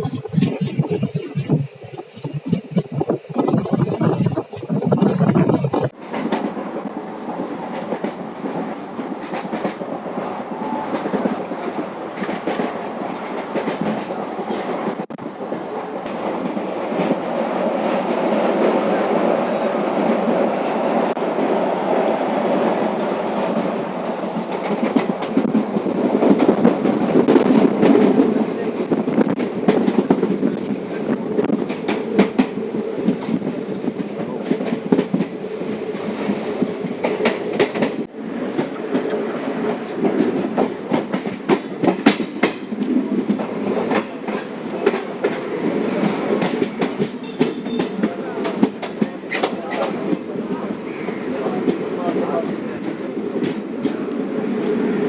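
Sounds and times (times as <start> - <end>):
train rumble: 0.0 - 55.0
wheels clacking over rail joints: 23.3 - 50.6.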